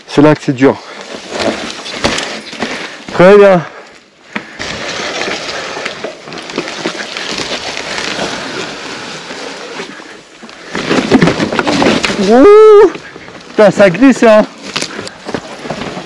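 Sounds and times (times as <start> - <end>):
bike tyres on loose ground: 0.0 - 16.0
bike clicks and rattles: 3.8 - 16.0.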